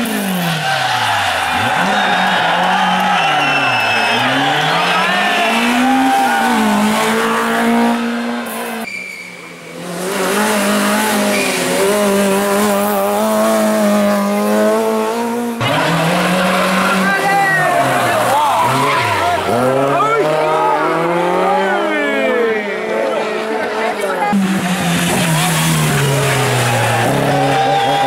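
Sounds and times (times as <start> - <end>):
car engine at high revs: 0.0 - 28.0
rally car engine revving: 0.0 - 28.0.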